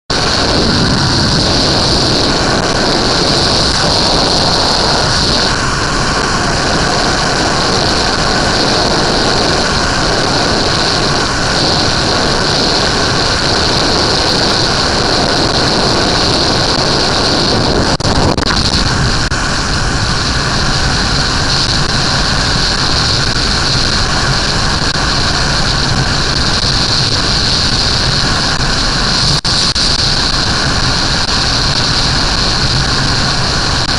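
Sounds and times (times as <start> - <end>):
loud wind rush: 0.0 - 33.9
motorcycle engine running: 0.1 - 33.9.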